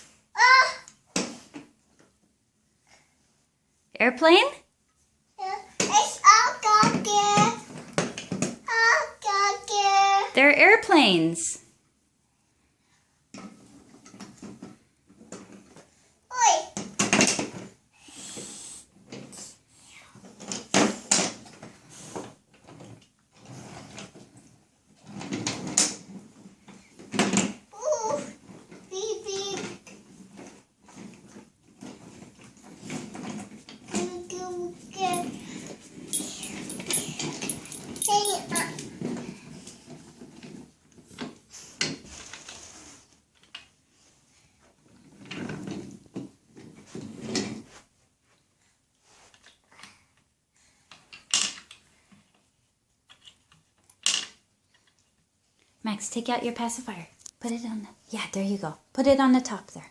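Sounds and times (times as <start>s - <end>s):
plastic toy pieces clattering: 36.1s - 38.9s.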